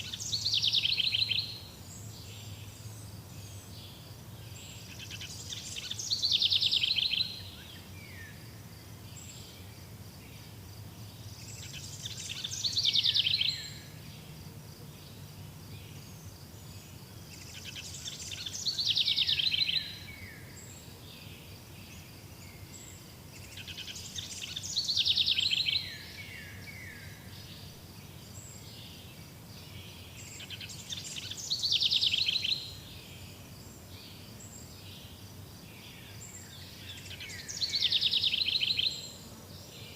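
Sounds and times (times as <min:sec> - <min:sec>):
songbird trilling: 0:00.0 - 0:01.6, 0:04.9 - 0:08.2, 0:11.5 - 0:14.0, 0:17.4 - 0:20.1, 0:23.5 - 0:26.6, 0:30.2 - 0:32.8, 0:36.8 - 0:39.1.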